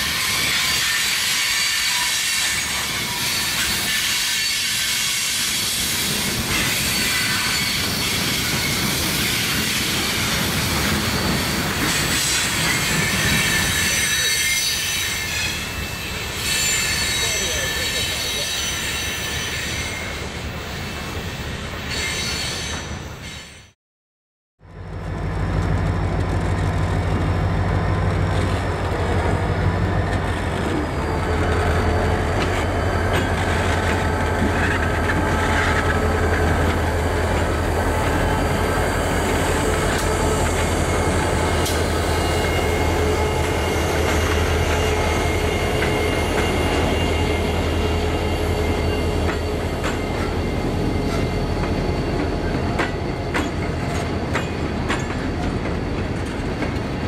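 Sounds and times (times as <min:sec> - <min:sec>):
high wheel squeal: 0:00.0 - 0:23.8, 0:29.9 - 0:57.0
diesel locomotive engine drone: 0:24.6 - 0:57.0
wheels clicking over rail joints: 0:51.1 - 0:56.9.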